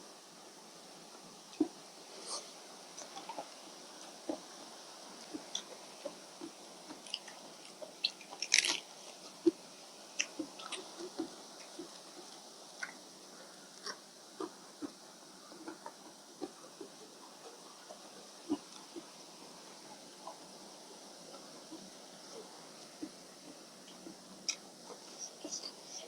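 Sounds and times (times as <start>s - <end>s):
person chewing and eating: 5.2s - 9.6s, 10.2s - 13.0s.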